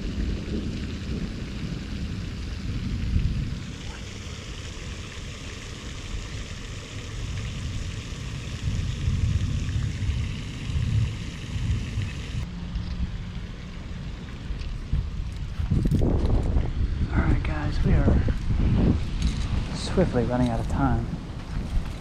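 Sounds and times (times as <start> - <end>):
thunder rumbling: 0.0 - 5.4, 7.3 - 12.4
steady hiss: 3.1 - 12.5.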